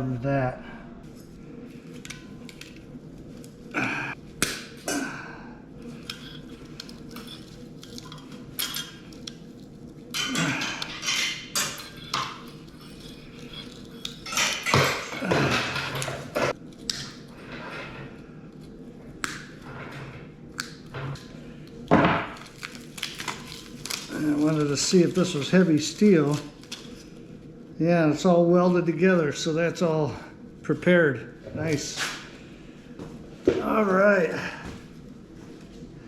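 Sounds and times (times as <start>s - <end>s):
metallic clanks and scrapes of tools: 10.2s - 16.6s.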